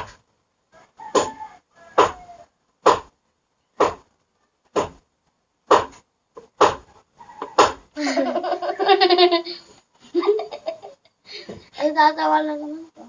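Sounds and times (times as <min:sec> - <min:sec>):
sharp knocks or claps: 0:01.2 - 0:01.4, 0:02.0 - 0:02.2, 0:02.8 - 0:03.1, 0:03.8 - 0:04.0, 0:04.7 - 0:05.0, 0:05.7 - 0:07.8
person laughing: 0:08.0 - 0:11.1.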